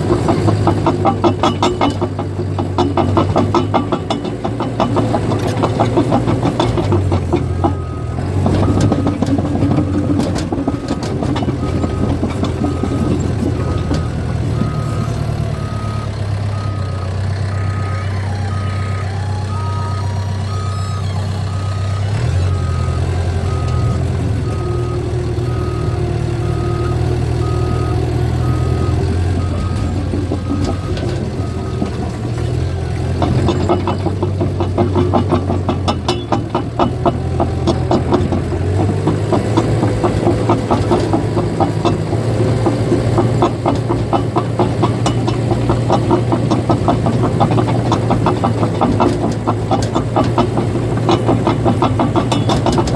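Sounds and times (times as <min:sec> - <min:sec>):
bulldozer diesel engine running: 0:00.0 - 0:52.9
steel tracks clanking: 0:00.0 - 0:52.9
backup alarm beeping: 0:06.5 - 0:32.2.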